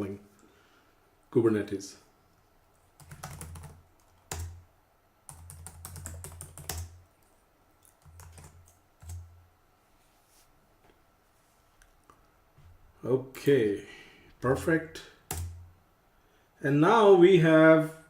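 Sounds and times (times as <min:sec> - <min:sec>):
computer keyboard typing: 0:03.0 - 0:04.6, 0:05.3 - 0:07.0, 0:07.8 - 0:09.3, 0:15.3 - 0:15.6.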